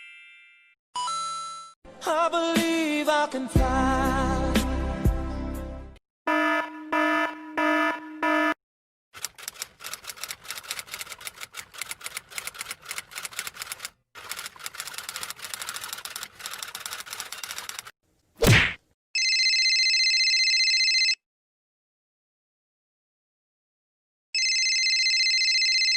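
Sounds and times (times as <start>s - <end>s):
typing clicks: 9.2s - 17.9s.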